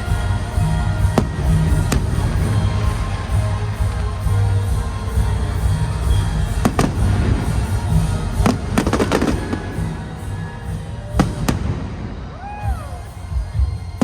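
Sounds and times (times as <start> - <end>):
fireworks crackling: 0.0 - 12.6
music playing: 0.0 - 14.0
fireworks bangs: 6.4 - 10.3, 11.1 - 12.5.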